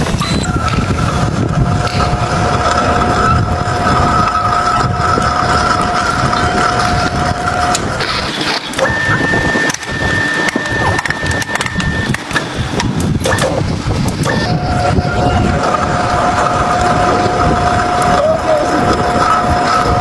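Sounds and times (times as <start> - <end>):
metal lathe whine: 0.0 - 20.0
higher tone: 3.2 - 20.0
clicks: 4.6 - 20.0.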